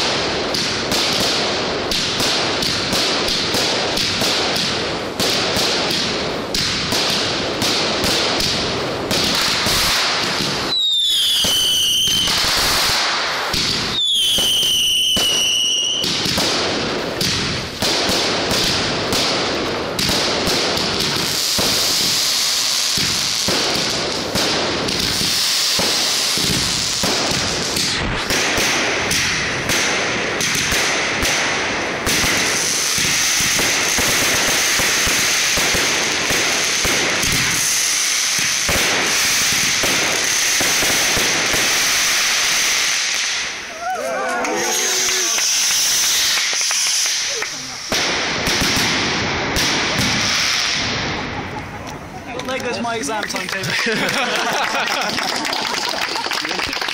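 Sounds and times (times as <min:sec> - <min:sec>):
fireworks bangs and crackles: 0:00.0 - 0:56.9
falling firework whistles: 0:09.2 - 0:16.4, 0:20.9 - 0:24.2, 0:32.1 - 0:49.0
high steady whistle: 0:10.7 - 0:12.3, 0:13.9 - 0:16.0.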